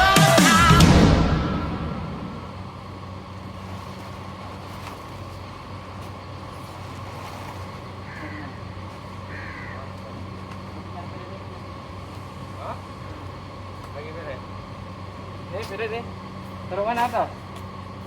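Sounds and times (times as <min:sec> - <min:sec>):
music: 0:00.0 - 0:02.8
vehicle engine running: 0:00.0 - 0:18.0.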